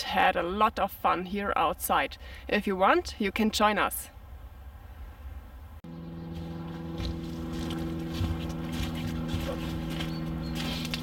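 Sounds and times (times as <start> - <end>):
steady motor hum: 5.8 - 11.0
footsteps crunching on gravel: 6.3 - 11.0.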